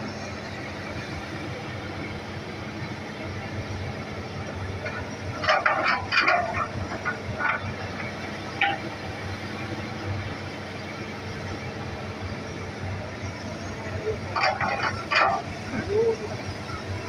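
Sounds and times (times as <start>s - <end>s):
excavator engine hum: 0.0s - 17.0s
metal knocks and clanks: 4.8s - 8.9s, 14.3s - 15.6s.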